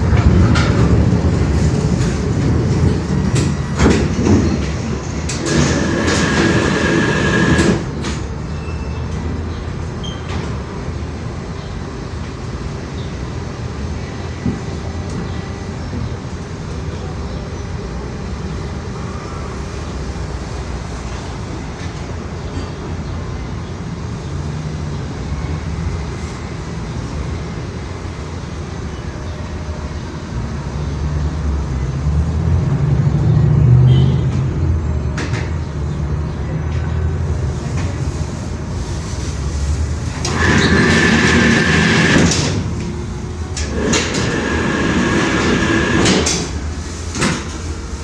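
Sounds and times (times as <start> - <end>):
moving vehicle rumble: 0.0 - 48.0.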